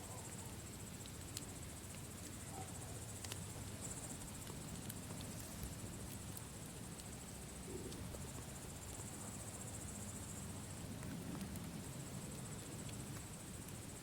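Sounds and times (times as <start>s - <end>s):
campfire crackling: 0.0s - 14.0s
crickets chirping: 0.0s - 14.0s.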